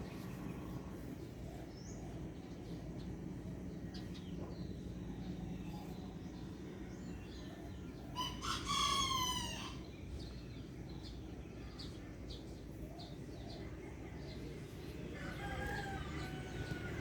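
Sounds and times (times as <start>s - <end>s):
low background hum: 0.0s - 17.0s
rooster crowing: 8.2s - 9.8s, 15.2s - 17.0s.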